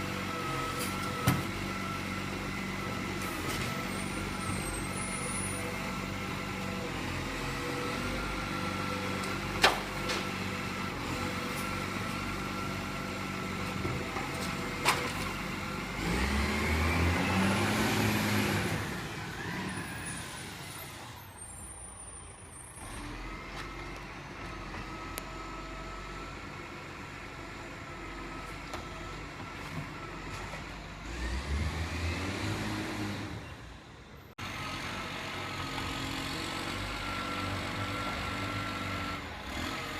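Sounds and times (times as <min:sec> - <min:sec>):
engine revving up: 0:15.6 - 0:20.6, 0:30.9 - 0:33.4.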